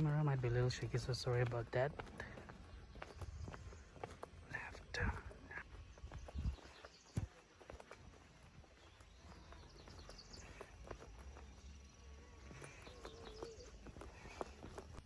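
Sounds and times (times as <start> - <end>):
faint bird chirps: 0.0 - 15.0
footsteps on a path: 0.0 - 15.0.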